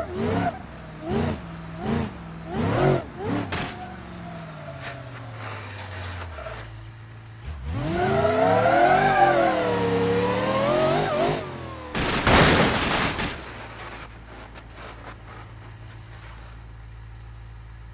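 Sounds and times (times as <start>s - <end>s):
engine revving: 0.0s - 6.7s, 7.4s - 12.6s.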